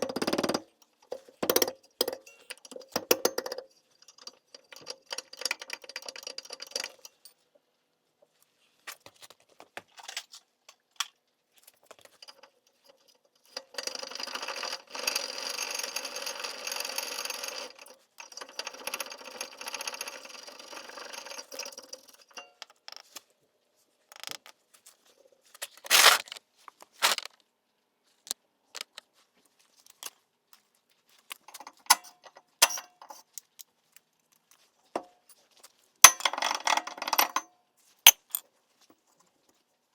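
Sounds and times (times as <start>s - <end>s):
metal tools clinking and scraping: 1.0s - 7.4s, 31.4s - 33.5s, 35.0s - 37.5s, 38.1s - 38.5s.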